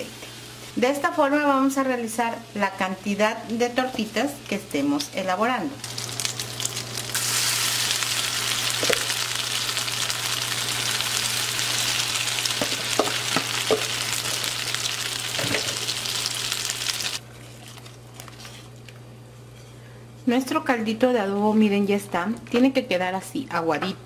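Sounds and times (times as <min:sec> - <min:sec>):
patties frying in hot oil: 0:05.8 - 0:17.2.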